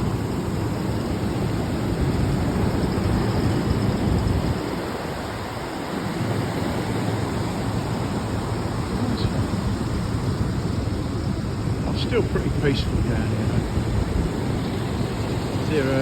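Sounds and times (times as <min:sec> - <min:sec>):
surf washing up beach: 0:00.0 - 0:16.0
wind rumbling on microphone: 0:00.0 - 0:16.0.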